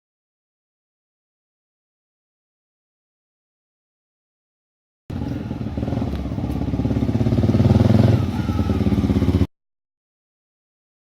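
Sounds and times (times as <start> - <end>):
motorcycle engine revving: 5.1 - 9.5.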